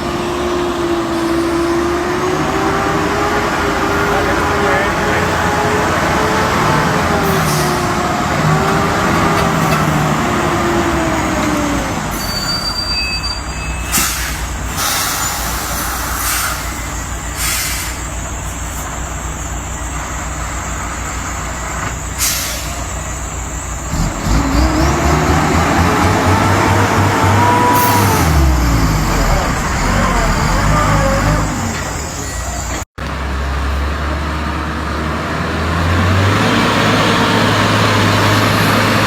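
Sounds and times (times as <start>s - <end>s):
truck diesel engine: 0.0s - 39.0s
air brake bursts: 7.2s - 8.1s, 12.0s - 18.9s, 22.1s - 23.0s, 26.7s - 32.6s.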